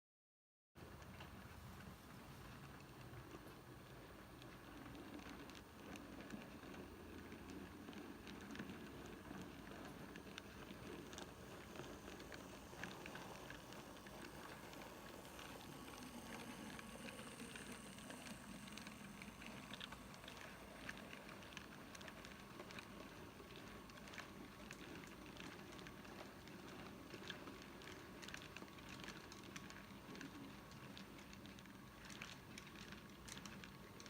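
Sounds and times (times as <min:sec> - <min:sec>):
wheels clicking on track: 0:00.9 - 0:34.0
model train hiss: 0:10.4 - 0:21.2.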